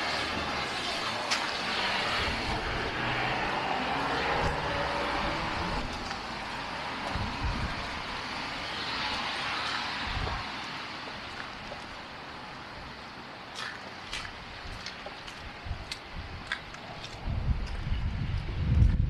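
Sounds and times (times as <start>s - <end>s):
passing vehicle engine and tyres: 0.0s - 19.0s.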